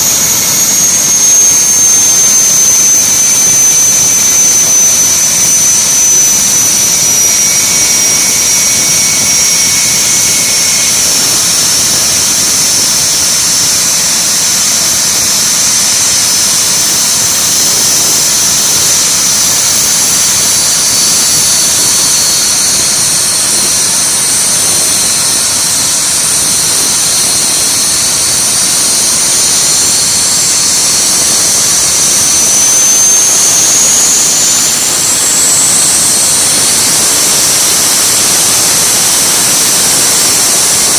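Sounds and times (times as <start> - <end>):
jet engines rushing: 0.0 - 14.3, 30.2 - 40.9
high-pitched turbine whines: 0.0 - 40.9.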